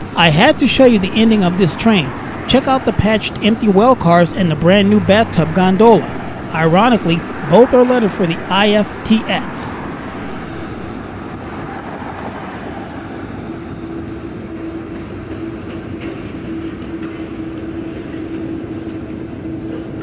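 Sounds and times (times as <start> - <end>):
steady tone: 0.0 - 14.8
train wheels rumbling on rail: 0.0 - 20.0.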